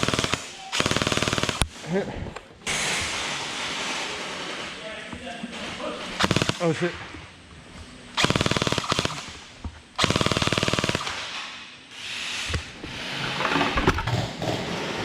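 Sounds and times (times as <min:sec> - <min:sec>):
gel blaster full-auto bursts: 0:00.0 - 0:01.8, 0:06.2 - 0:06.9, 0:08.2 - 0:09.4, 0:10.0 - 0:11.3.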